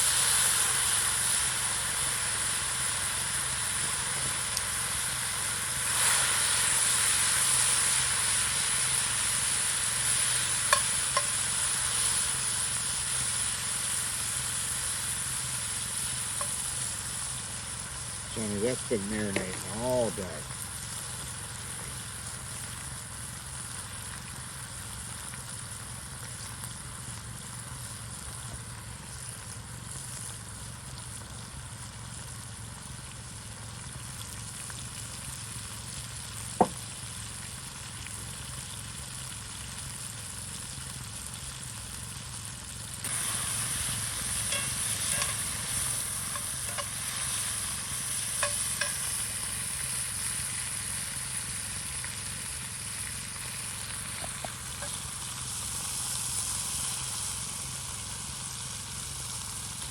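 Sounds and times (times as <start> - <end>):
crackles and spits: 0.0 - 59.9
meat sizzling over fire: 0.0 - 59.9.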